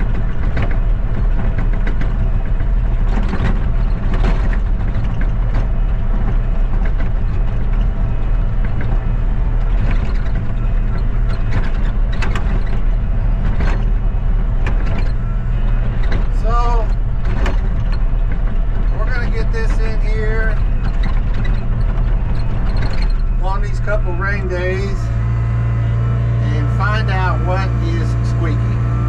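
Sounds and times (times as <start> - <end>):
vehicle engine running: 0.0 - 29.0
clicks and rattles: 14.6 - 23.4.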